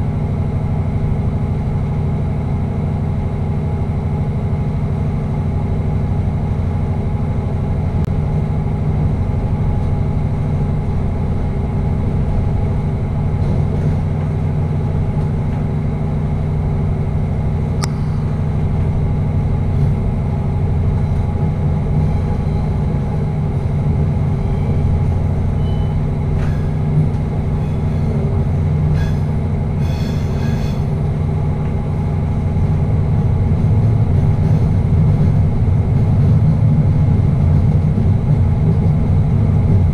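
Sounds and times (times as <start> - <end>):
train rumbling through tunnel: 0.0 - 39.9
brief clicks: 17.8 - 18.3.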